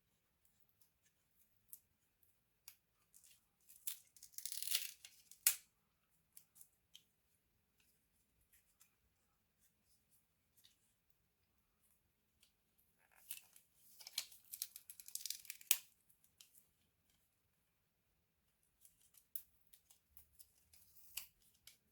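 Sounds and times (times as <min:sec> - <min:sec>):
small parts clicking: 0:03.8 - 0:05.6.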